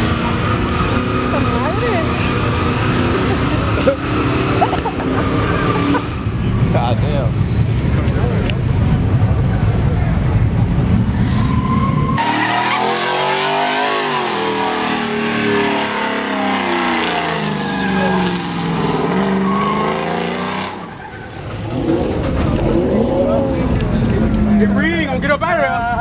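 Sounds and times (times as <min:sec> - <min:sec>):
truck engine revving hard: 0:00.0 - 0:08.0, 0:08.6 - 0:25.5
tires squealing: 0:00.0 - 0:10.1, 0:10.8 - 0:26.0.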